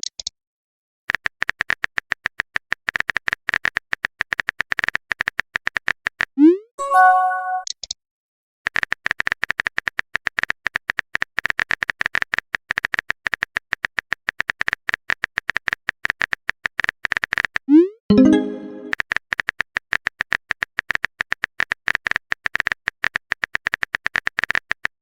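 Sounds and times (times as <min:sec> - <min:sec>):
notification chime: 0:06.8 - 0:07.6, 0:18.1 - 0:18.9.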